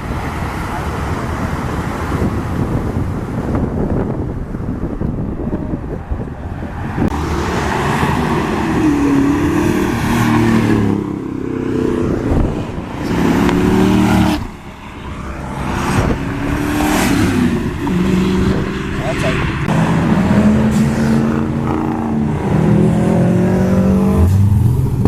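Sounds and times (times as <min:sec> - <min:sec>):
car engine revving: 0:06.8 - 0:25.0.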